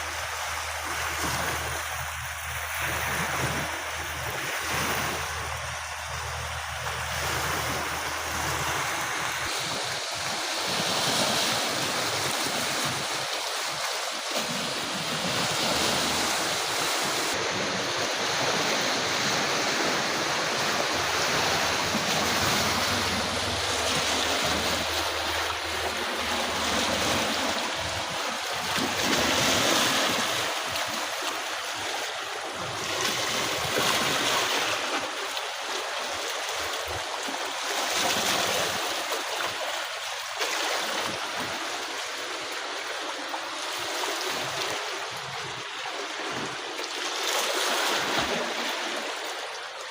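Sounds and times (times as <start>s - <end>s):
sea waves washing ashore: 0.0s - 49.9s.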